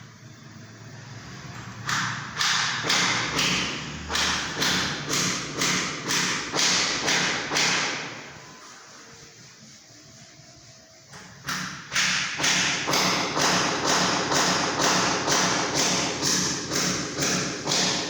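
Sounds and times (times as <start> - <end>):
hammer blows on wood: 11.5 - 18.0.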